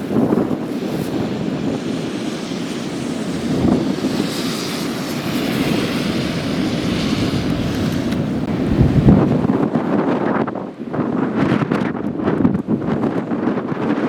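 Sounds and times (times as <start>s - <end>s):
road and engine noise: 0.0s - 11.0s
wind gusts buffeting car: 0.0s - 14.0s.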